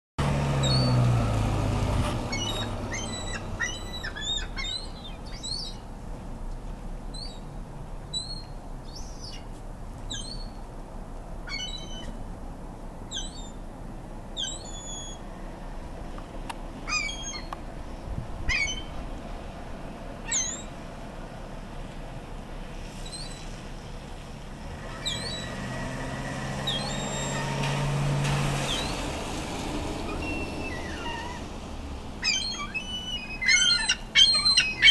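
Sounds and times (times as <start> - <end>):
gulls calling: 2.2 - 5.8, 11.5 - 12.2, 16.8 - 17.6, 18.4 - 19.0, 20.3 - 20.7, 24.9 - 25.5, 26.6 - 27.5, 28.7 - 29.0, 30.0 - 31.4, 32.2 - 34.9.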